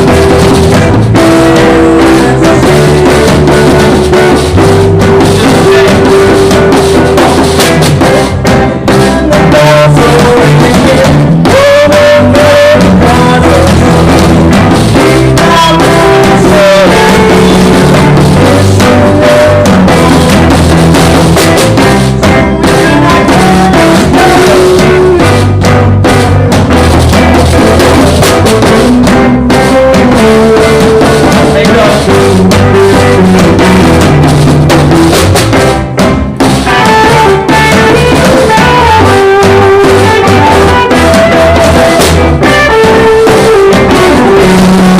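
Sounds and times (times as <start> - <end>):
drum kit: 0.0 - 44.9
guitar playing: 0.0 - 44.9.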